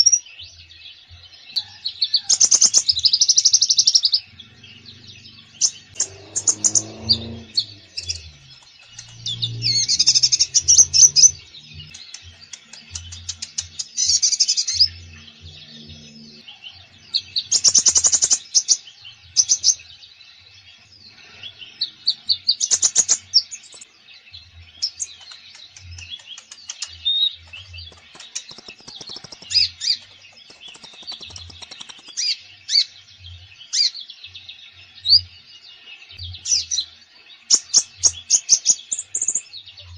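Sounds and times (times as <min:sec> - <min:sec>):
bird fast high trills: 0:04.0 - 0:13.4.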